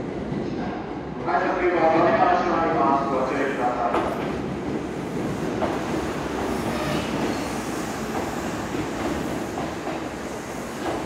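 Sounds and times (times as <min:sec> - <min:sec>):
train wheels on rails: 0:03.2 - 0:11.0.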